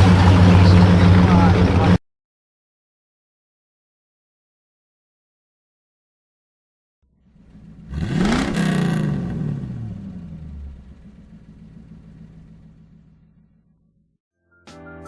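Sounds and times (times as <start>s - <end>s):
car engine revving hard: 7.4s - 13.3s.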